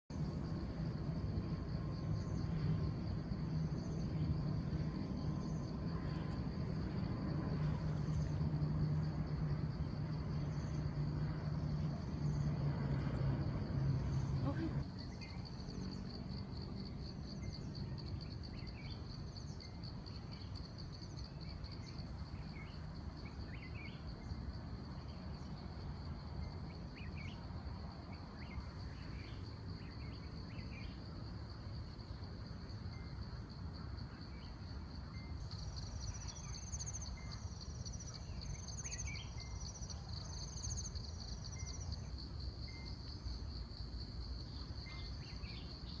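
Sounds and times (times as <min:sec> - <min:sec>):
low hum: 0:00.1 - 0:14.8
higher insect trill: 0:00.1 - 0:46.0
insects trilling: 0:00.2 - 0:46.0.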